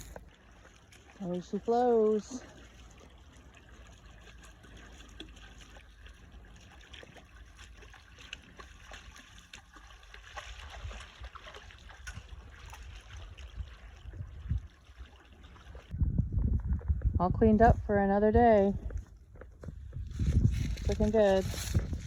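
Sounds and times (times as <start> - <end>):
water splashes and drips: 0.0 - 16.0
water trickling and gurgling: 0.0 - 16.0.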